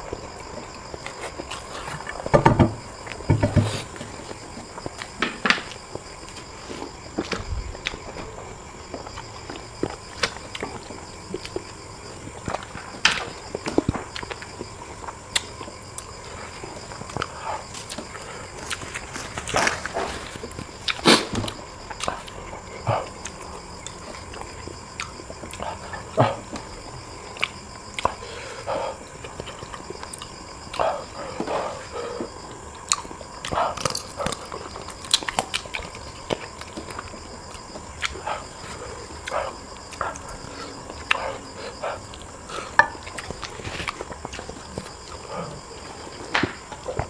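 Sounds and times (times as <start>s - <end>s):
person eating: 17.0s - 22.4s.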